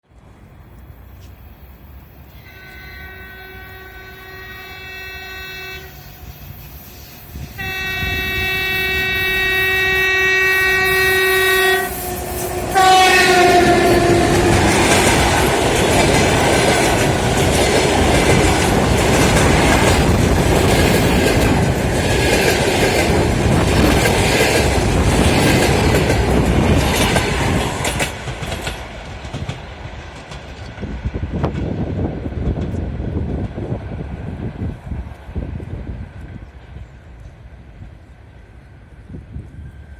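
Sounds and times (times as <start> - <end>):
train horn blasts: 2.3 - 6.5, 7.4 - 15.1
train wheels clicking over rail joints: 11.8 - 34.1.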